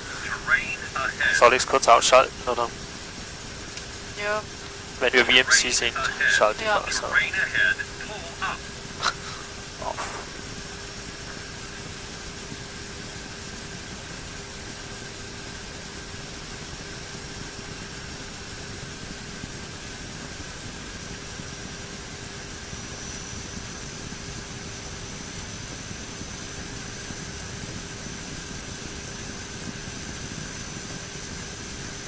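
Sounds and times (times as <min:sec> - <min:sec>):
even hiss: 0:00.0 - 0:11.8
faint high whine: 0:00.0 - 0:32.0
turboprop engine and propeller noise: 0:00.0 - 0:32.0.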